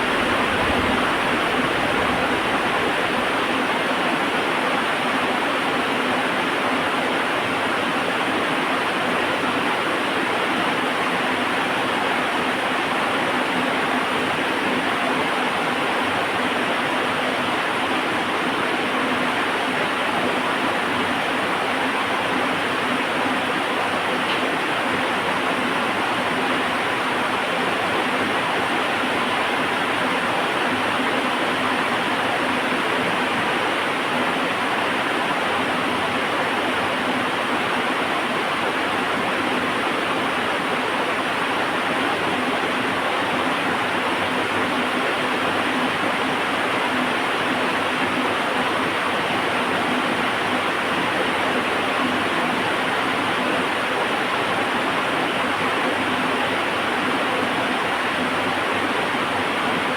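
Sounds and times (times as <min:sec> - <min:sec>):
heavy rain falling: 0:00.0 - 0:03.7.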